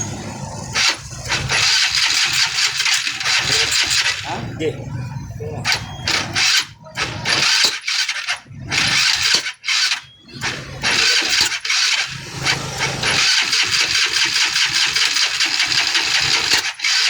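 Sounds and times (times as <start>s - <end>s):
scooter engine cranking: 0.0s - 17.0s.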